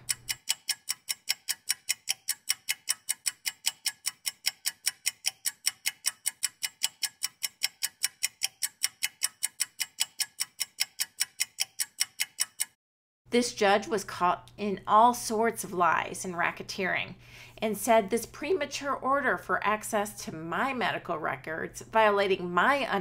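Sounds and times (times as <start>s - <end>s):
rapid high-pitched ticking: 0.0s - 12.8s.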